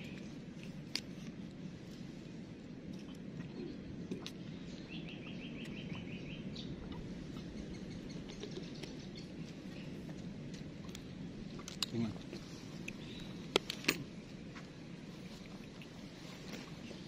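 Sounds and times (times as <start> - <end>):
low outdoor rush: 0.0 - 17.0
bird chirping: 4.5 - 10.1, 12.9 - 13.5.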